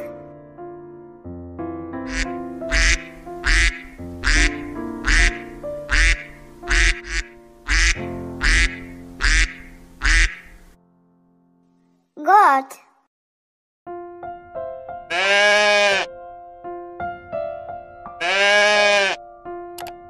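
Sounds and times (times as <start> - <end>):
background music: 0.0 - 11.7, 13.9 - 20.0
duck quacking: 2.1 - 10.7, 15.1 - 16.1, 18.2 - 19.2.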